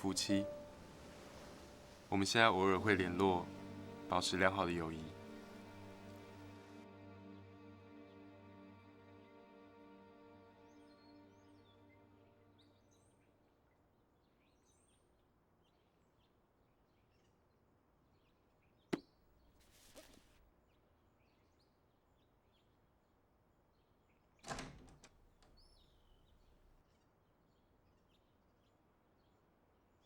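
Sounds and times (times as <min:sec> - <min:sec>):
music: 0:00.0 - 0:13.4
brief hiss: 0:00.1 - 0:02.2.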